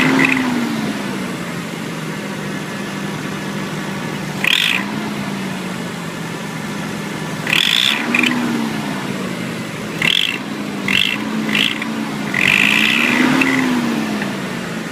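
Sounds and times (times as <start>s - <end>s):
high-pitched rattling: 0.0s - 0.5s, 4.4s - 4.9s, 7.4s - 8.4s, 9.9s - 13.9s
car engine idling: 0.0s - 14.9s.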